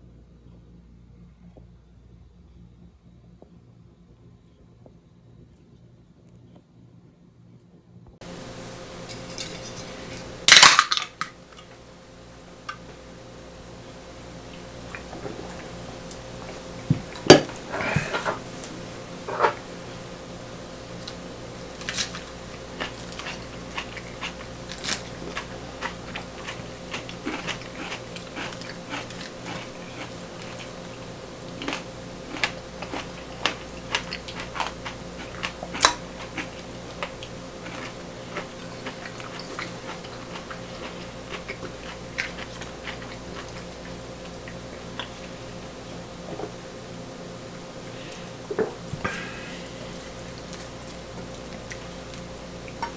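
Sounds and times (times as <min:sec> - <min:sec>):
steady low hum: 0:00.0 - 0:52.9
chewing and crunching: 0:20.9 - 0:46.6, 0:49.8 - 0:52.9.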